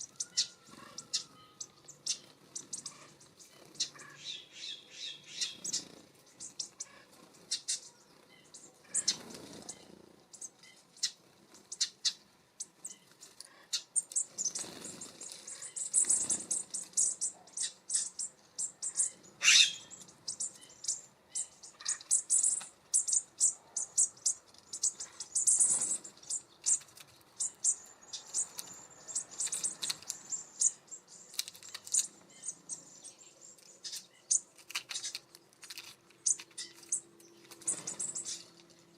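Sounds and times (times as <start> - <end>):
small songbirds twittering: 0.0 - 38.9
wing flutters: 5.4 - 10.1, 12.8 - 17.3, 24.4 - 27.6, 33.6 - 38.9.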